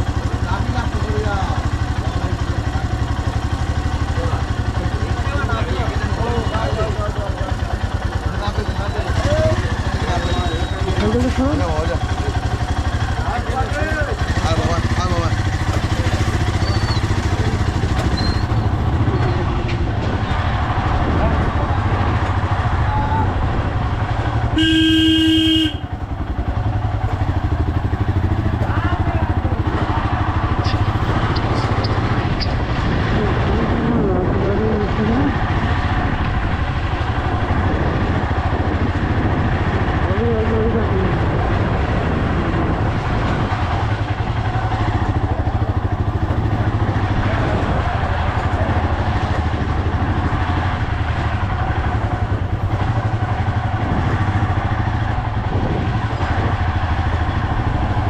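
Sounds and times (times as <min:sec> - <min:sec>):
motorcycle engine running: 0:00.0 - 0:58.0
road and wind noise: 0:00.0 - 0:58.0
horn sounding: 0:24.5 - 0:26.0.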